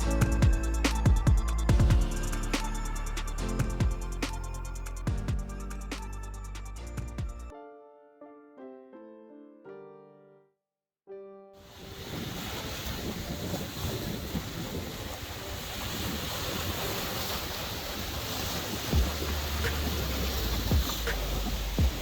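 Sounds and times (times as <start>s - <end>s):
low bump: 0.0s - 7.5s
sea waves washing onto beach: 11.7s - 22.0s
wind buffeting microphone: 11.8s - 22.0s.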